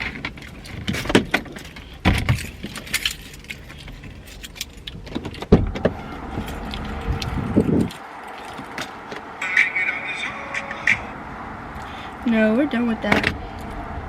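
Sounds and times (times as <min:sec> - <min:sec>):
handling clatter: 0:00.0 - 0:08.9
keys jangling: 0:02.3 - 0:05.0.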